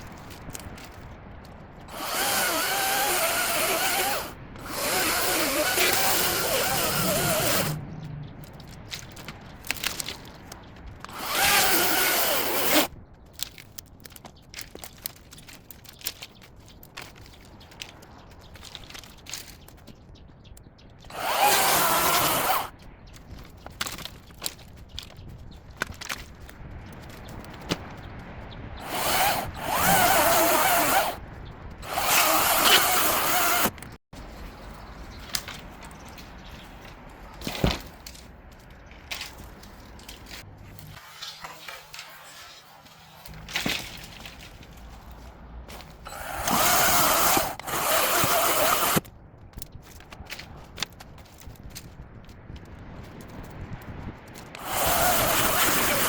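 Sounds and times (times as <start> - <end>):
branches crackling and snapping: 0.0 - 41.0, 43.2 - 56.0
chainsaw cutting: 1.9 - 7.8, 11.1 - 12.9, 21.1 - 22.7, 28.8 - 31.2, 31.8 - 33.8, 46.1 - 49.0, 54.6 - 56.0.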